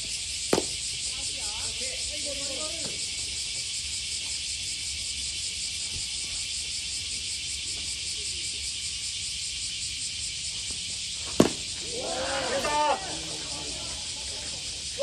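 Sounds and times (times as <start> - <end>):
cicada chorus drone: 0.0 - 15.0
sharp crack: 11.2 - 14.1.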